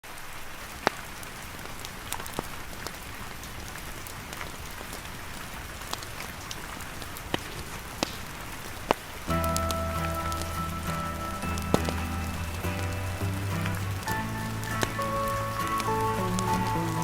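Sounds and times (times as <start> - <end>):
rain falling on a tent: 0.0 - 17.0
campfire crackling: 0.1 - 17.0.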